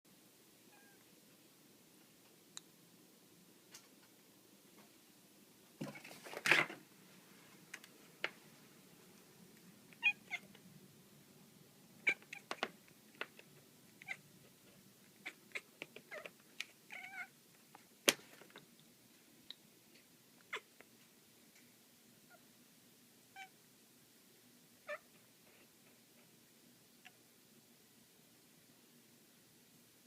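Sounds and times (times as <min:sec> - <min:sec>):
cat chirping and meowing: 0:00.7 - 0:01.0, 0:10.0 - 0:10.6, 0:12.0 - 0:12.6, 0:14.0 - 0:14.3, 0:15.2 - 0:17.4, 0:20.5 - 0:20.8, 0:23.3 - 0:23.6, 0:24.8 - 0:25.1.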